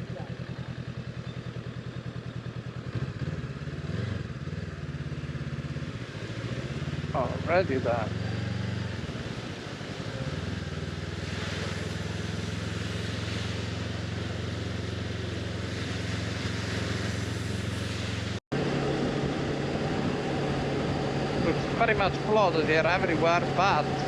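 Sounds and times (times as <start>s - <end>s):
motorcycle engine cruising: 0.0s - 24.0s
wind and road noise: 0.0s - 24.0s.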